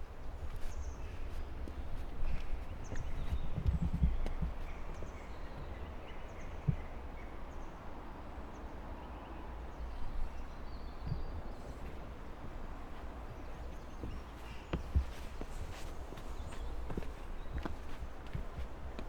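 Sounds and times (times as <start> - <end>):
soft thumps: 14.0 - 19.0.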